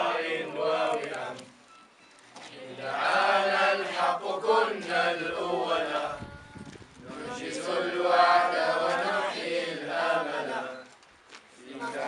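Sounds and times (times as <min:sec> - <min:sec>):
group chanting in unison: 0:00.0 - 0:01.5, 0:02.5 - 0:06.2, 0:07.0 - 0:10.8, 0:11.6 - 0:12.0.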